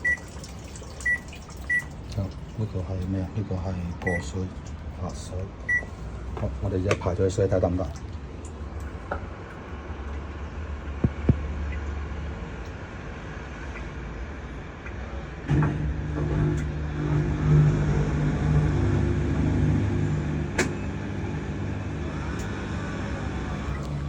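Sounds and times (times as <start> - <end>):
electric motor hum: 15.5 - 24.0.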